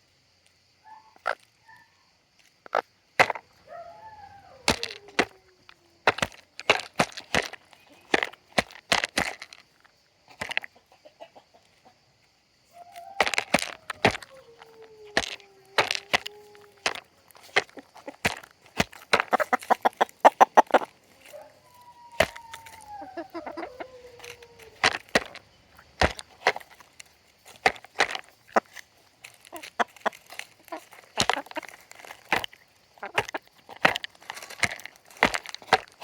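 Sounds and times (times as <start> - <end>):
chickens pecking at food: 1.2 - 36.0
chicken call falling in pitch: 3.6 - 6.3, 12.7 - 17.0, 20.6 - 25.4.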